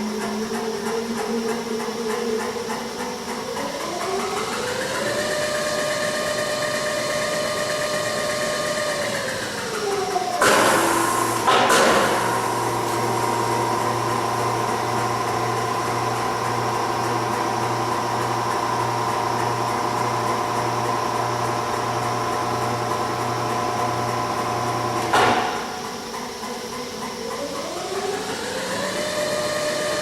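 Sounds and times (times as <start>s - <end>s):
electric drive humming: 0.0s - 27.0s
mechanical clunk: 25.0s - 26.0s.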